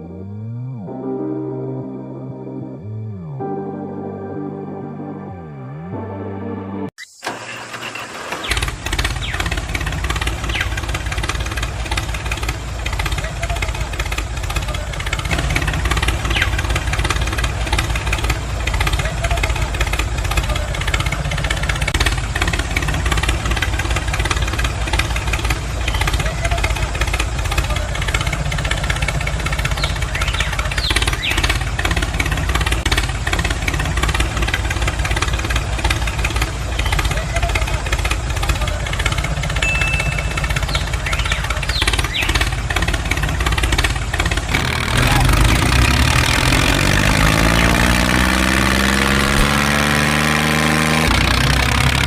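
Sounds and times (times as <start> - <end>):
motor running with rough chug: 7.2 - 52.0
short high chirps: 39.6 - 41.4.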